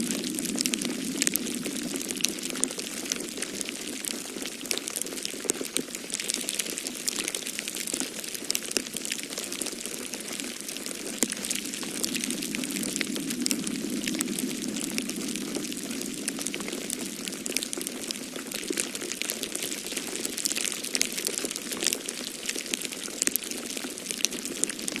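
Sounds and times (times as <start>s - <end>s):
storm wind rushing: 0.0s - 3.9s, 11.2s - 18.3s
wood fire crackling and popping: 0.0s - 25.0s.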